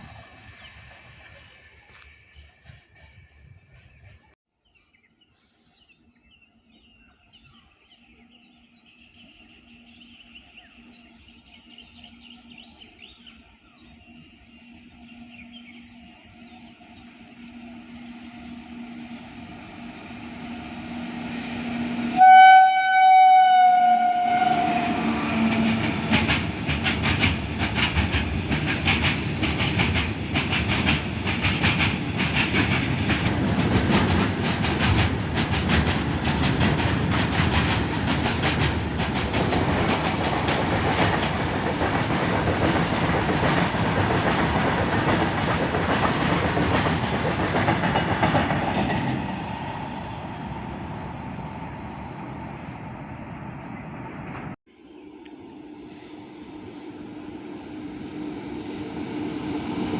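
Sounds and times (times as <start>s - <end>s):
train horn blast: 21.5s - 26.1s
wheels clacking over rail joints: 24.4s - 49.6s.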